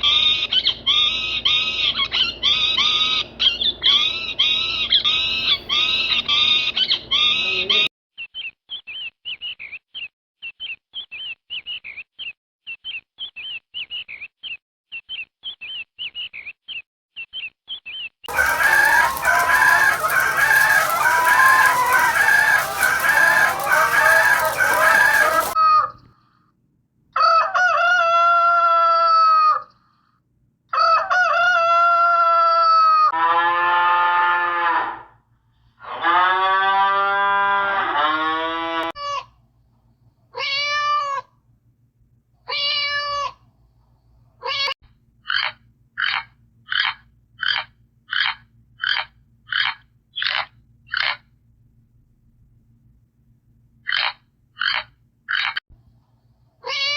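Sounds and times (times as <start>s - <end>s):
dense loud animal clamour: 18.3s - 25.6s
fast high chirping: 18.3s - 25.6s
pitched animal calls: 18.3s - 25.6s, 45.3s - 51.2s, 53.9s - 55.6s
rooster crowing: 18.3s - 25.6s, 27.2s - 29.2s, 30.8s - 34.6s.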